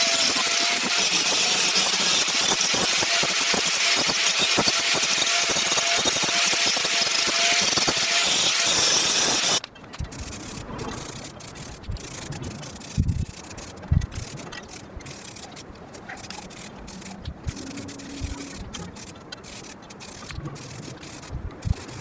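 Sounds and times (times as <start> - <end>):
angle grinder running: 0.0 - 9.7
rubbing and scraping: 0.0 - 22.0.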